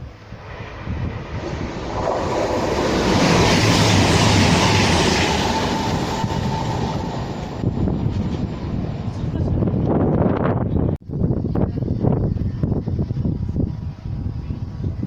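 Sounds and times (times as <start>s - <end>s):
train passing at speed: 0.0s - 11.0s.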